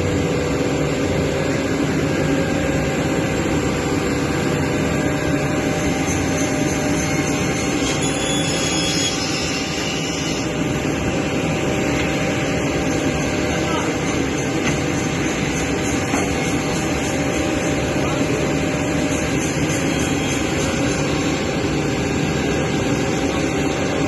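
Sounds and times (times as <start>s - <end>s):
faint high whine: 2.4s - 14.4s.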